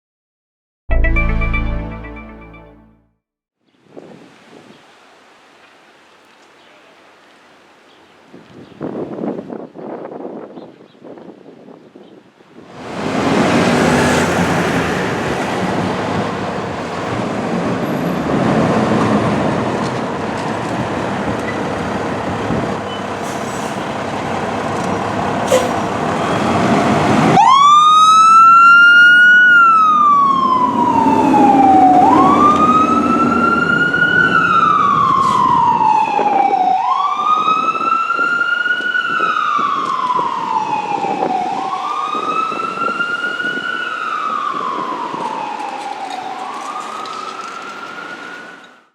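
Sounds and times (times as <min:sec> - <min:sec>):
wind noise: 0:03.8 - 0:04.8, 0:08.3 - 0:28.4, 0:29.7 - 0:48.2
vehicle noise: 0:12.7 - 0:28.7, 0:29.5 - 0:36.0, 0:39.6 - 0:48.9
fire engine siren wailing: 0:23.9 - 0:48.9.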